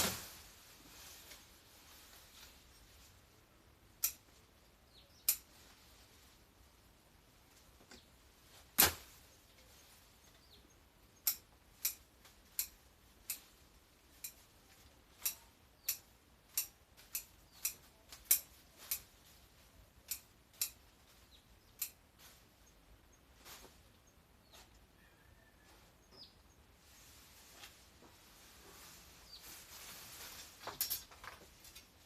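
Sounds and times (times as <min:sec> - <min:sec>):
garden shears snipping: 0:03.9 - 0:04.4, 0:05.2 - 0:05.6, 0:11.2 - 0:22.5.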